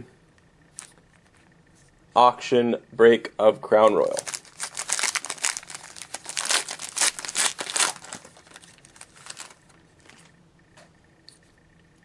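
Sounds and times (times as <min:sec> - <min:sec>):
card pack wrapper tearing and crinkling: 0:04.0 - 0:10.3.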